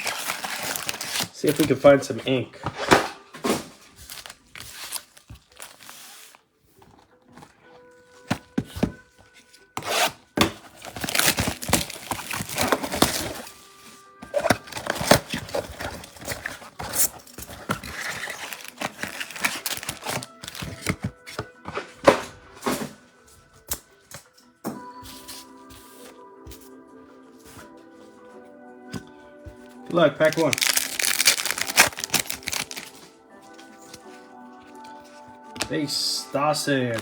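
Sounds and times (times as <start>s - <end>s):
foil wrappers tearing and crinkling: 0.0s - 1.8s, 3.9s - 6.4s, 9.8s - 13.6s, 14.2s - 21.1s, 30.0s - 33.1s.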